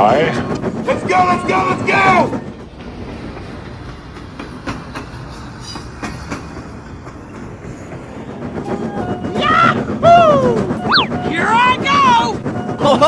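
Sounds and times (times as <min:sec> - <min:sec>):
train rumbling along track: 0:00.0 - 0:13.0
wheels clicking over rail joints: 0:00.0 - 0:13.0.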